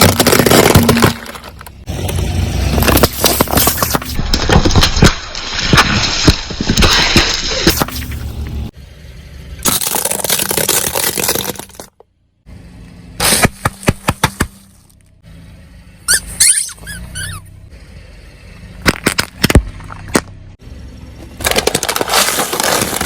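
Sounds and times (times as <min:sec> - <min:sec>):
car tyre crushing objects: 0:00.0 - 0:08.8, 0:09.6 - 0:12.2, 0:13.1 - 0:15.2, 0:18.6 - 0:23.0
brief squeak: 0:16.1 - 0:17.5.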